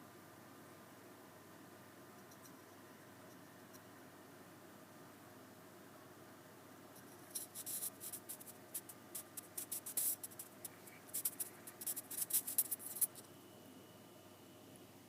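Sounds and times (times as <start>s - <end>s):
scratchy rustling: 7.3s - 13.3s.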